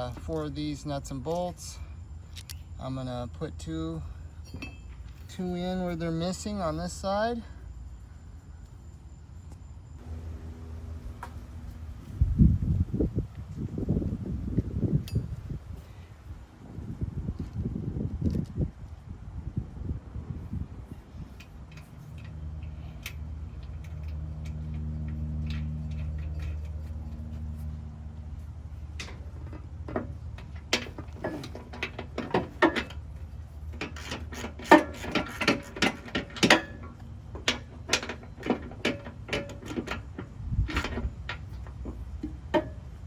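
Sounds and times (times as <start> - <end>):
low hum: 7.4 - 15.6
hand tools clicking and knocking: 28.9 - 42.9.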